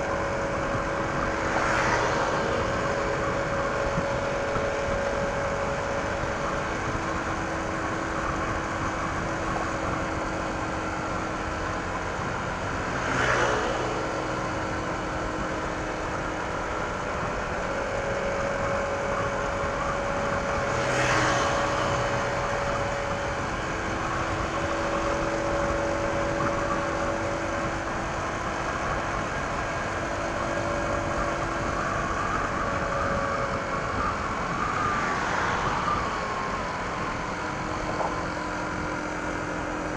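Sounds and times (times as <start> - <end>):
scooter engine cruising: 0.0 - 17.7
wind and road noise: 0.0 - 39.9.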